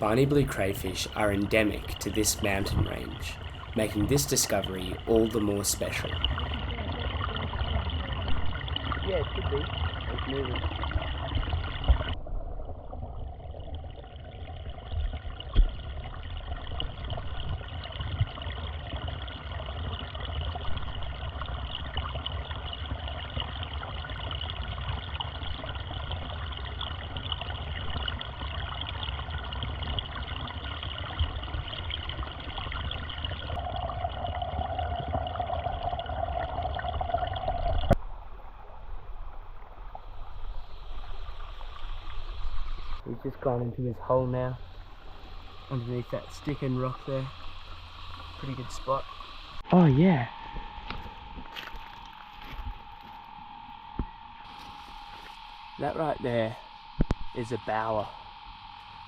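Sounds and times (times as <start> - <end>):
steady tone: 0.0 - 10.5, 31.5 - 59.0
stream trickling: 0.0 - 59.0.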